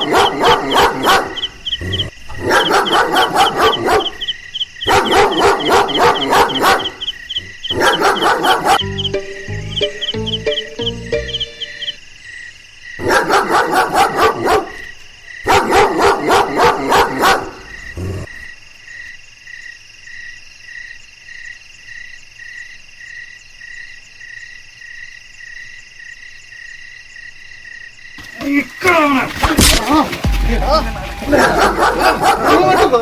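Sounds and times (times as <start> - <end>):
dog barking: 0.0 - 8.9, 13.0 - 17.7, 31.3 - 33.0
steady chirping: 0.0 - 12.1, 29.3 - 33.0.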